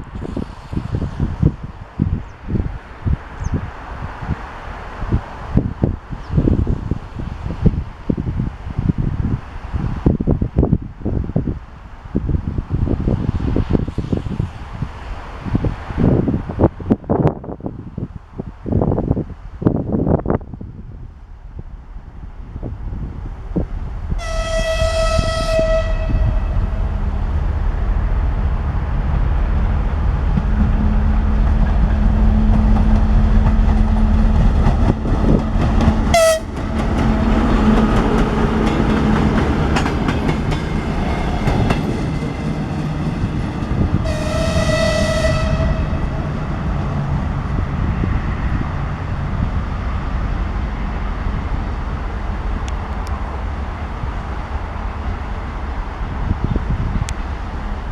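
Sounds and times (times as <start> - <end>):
diesel train engine drone: 0.0 - 57.9
wheels rumbling on rails: 0.0 - 57.9
train horn blast: 24.1 - 27.2, 36.0 - 38.5, 44.0 - 46.8.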